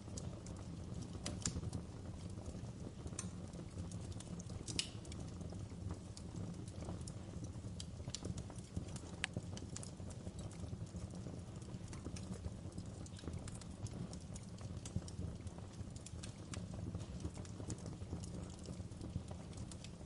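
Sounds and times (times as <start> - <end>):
low rumble of flames: 0.0 - 20.0
wood fire crackling and popping: 0.0 - 20.0.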